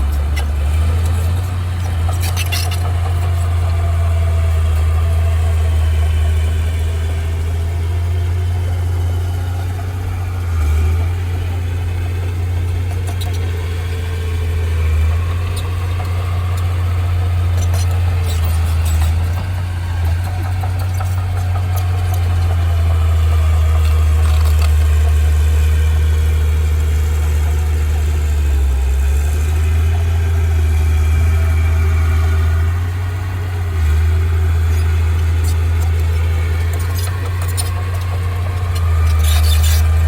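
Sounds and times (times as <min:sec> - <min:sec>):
heavy diesel engine droning: 0:00.0 - 0:40.0.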